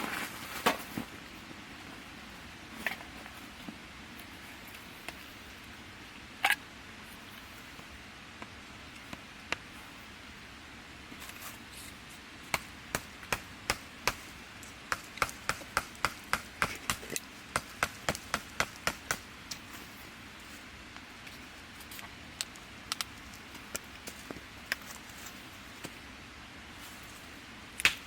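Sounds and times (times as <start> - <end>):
chopping on wood: 14.9 - 19.2.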